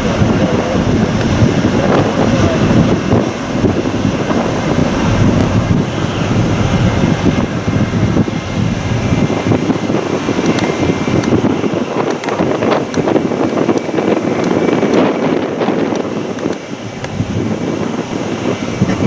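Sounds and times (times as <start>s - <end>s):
gusty wind buffeting microphone: 0.0s - 19.0s.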